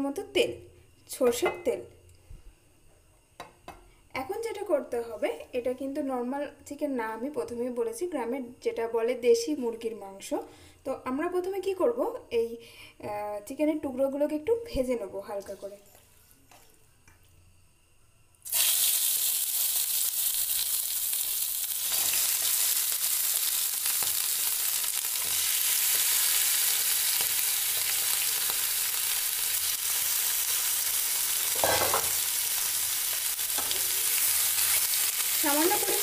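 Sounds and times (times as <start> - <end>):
chicken sizzling in hot oil: 18.4 - 36.0.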